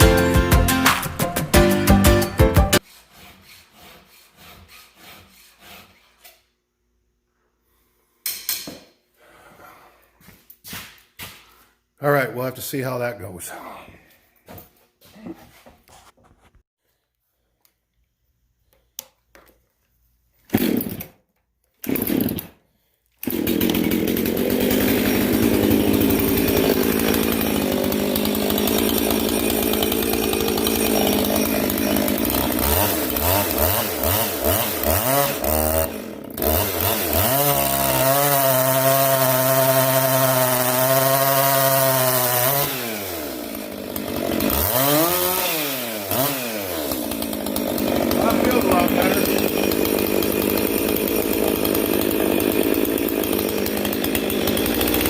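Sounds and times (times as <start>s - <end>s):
chainsaw engine revving: 20.5s - 21.1s, 21.8s - 22.6s, 23.2s - 55.0s
chainsaw starter pulls: 20.5s - 21.2s, 21.8s - 22.6s, 23.2s - 42.8s, 43.5s - 55.0s.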